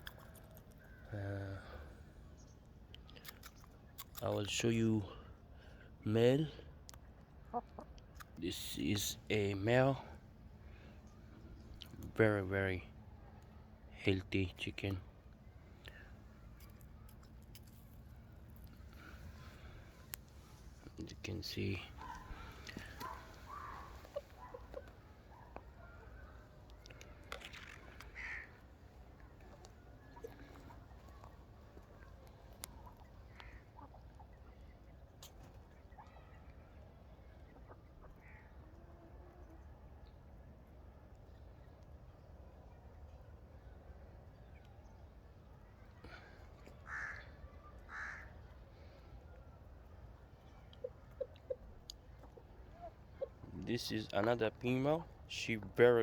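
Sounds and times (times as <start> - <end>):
chickens calling softly: 18.6 - 36.5, 50.4 - 54.3
bird harsh cawing calls: 22.0 - 24.9, 28.1 - 28.6, 46.8 - 48.3.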